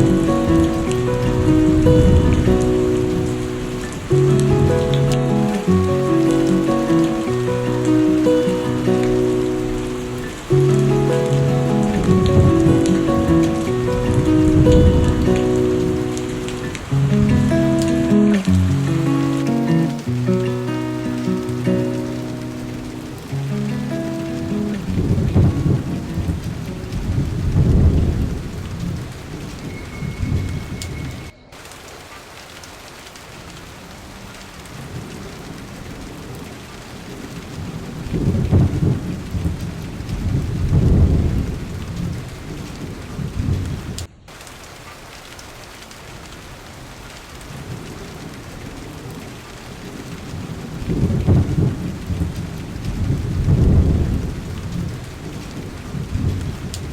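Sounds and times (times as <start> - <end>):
rolling thunder: 0.0 - 4.0, 10.7 - 17.5, 24.8 - 31.2, 37.5 - 44.0, 50.3 - 56.9
steady rain: 0.0 - 56.9.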